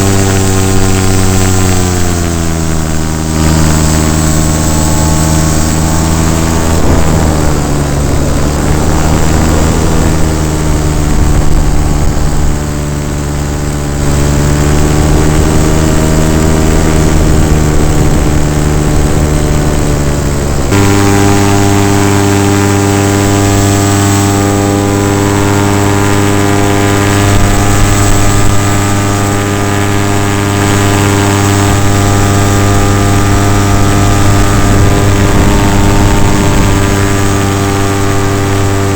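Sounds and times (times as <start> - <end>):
paramotor engine and propeller: 0.0 - 38.9.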